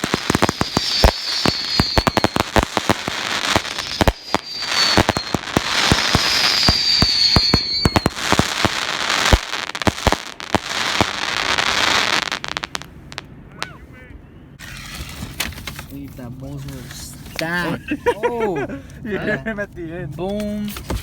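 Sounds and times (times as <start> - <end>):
fireworks crackling: 0.0 - 13.7
fireworks bangs: 0.0 - 13.9
high falling whistle: 0.4 - 2.6, 3.3 - 8.2.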